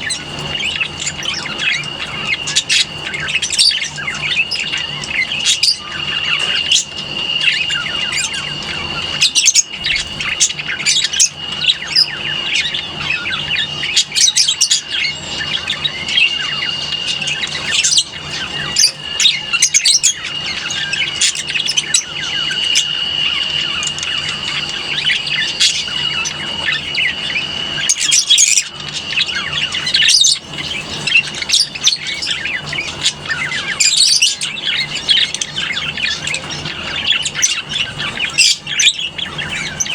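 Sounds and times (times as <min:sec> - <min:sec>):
lovebirds chattering: 0:00.0 - 0:39.9
steady high-pitched tone: 0:00.0 - 0:39.9.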